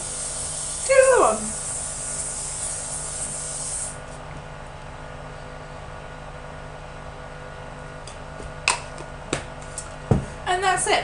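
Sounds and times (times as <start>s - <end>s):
aerosol hairspray hissing: 0.0s - 4.0s.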